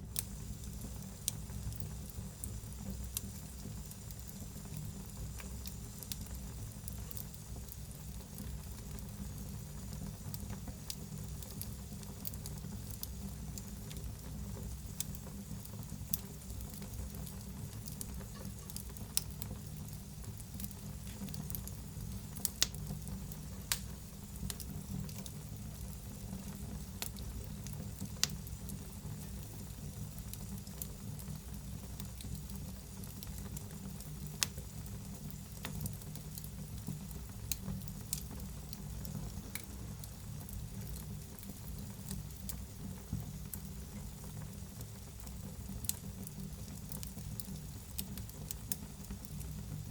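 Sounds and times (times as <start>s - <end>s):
wood fire crackling: 0.0s - 49.9s
sharp pops of fire: 23.6s - 25.3s.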